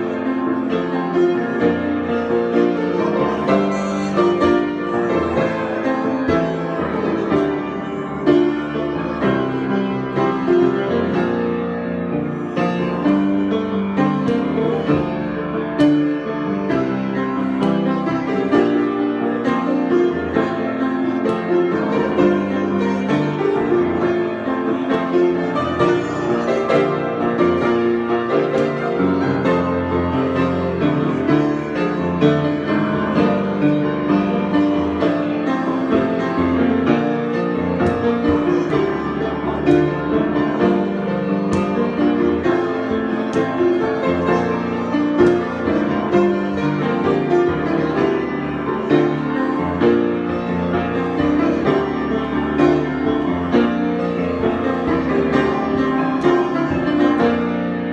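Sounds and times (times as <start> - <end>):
solo piano improvisation: 0.0 - 57.9.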